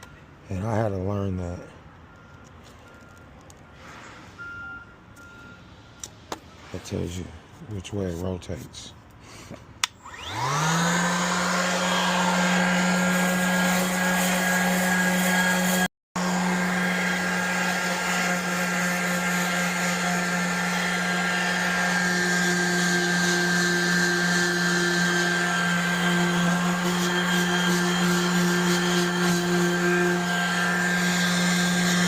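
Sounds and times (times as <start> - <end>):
electric sanding tool whining: 10.0 - 32.0.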